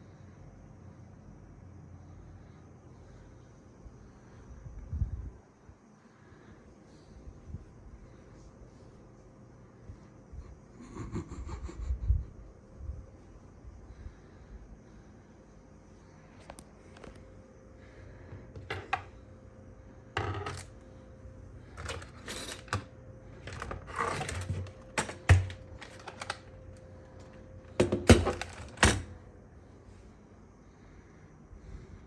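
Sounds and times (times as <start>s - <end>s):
computer hardware clicking and scraping: 21.7s - 26.5s
faint steady tone: 29.1s - 32.0s.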